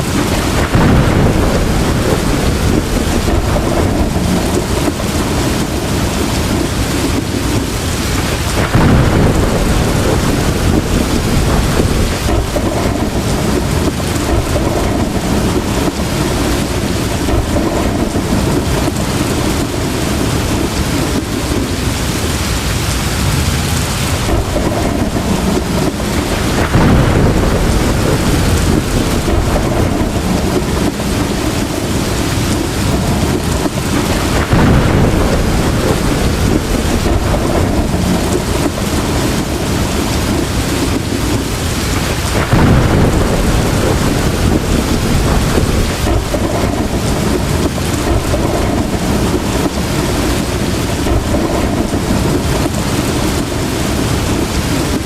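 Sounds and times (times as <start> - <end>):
rolls of thunder: 0.0 - 21.9, 23.2 - 55.0
heavy rain pouring: 0.0 - 55.0.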